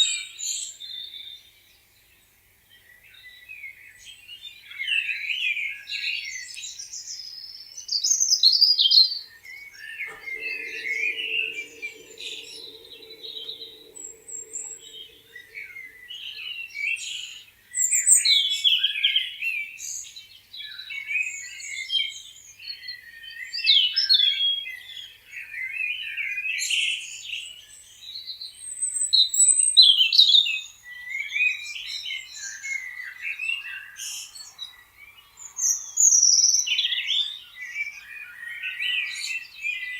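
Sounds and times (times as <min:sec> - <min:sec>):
songbirds chirping and singing: 0:10.1 - 0:16.2
low droning tone: 0:10.1 - 0:16.5.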